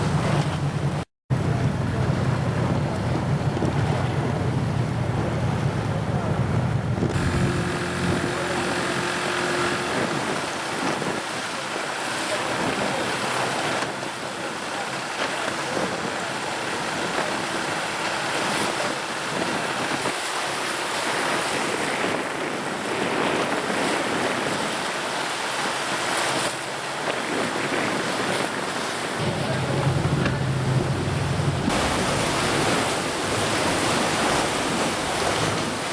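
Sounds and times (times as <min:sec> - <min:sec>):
sea water splashing: 0:00.0 - 0:35.9
wind on microphone: 0:00.0 - 0:35.9.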